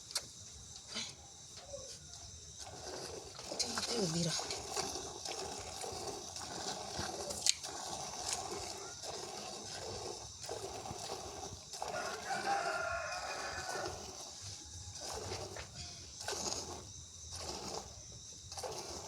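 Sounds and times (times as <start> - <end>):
rooster crowing: 11.8 - 15.1.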